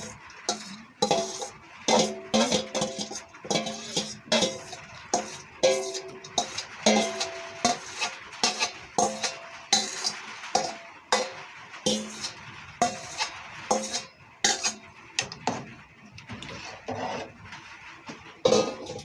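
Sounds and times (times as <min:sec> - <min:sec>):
metal spoon clinking on pot: 0:00.0 - 0:14.8.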